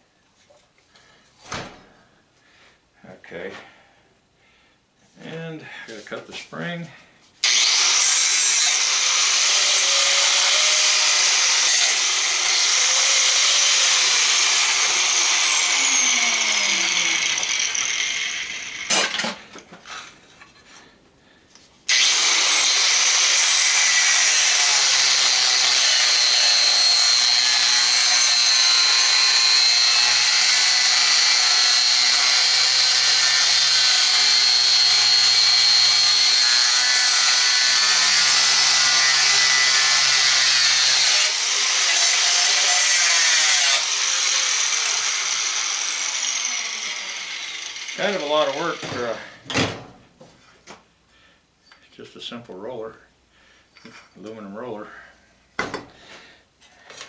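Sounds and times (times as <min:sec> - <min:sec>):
cutting disc grinding metal: 0:07.4 - 0:19.4, 0:21.9 - 0:49.3.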